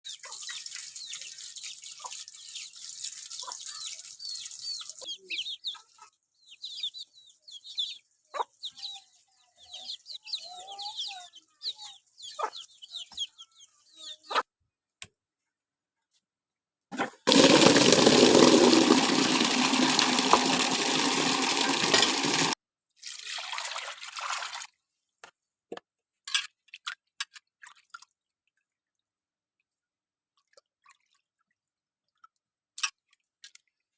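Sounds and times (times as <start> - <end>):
water dripping and splashing: 0.1 - 5.0, 17.3 - 24.7
running water: 0.1 - 5.1, 17.0 - 24.7.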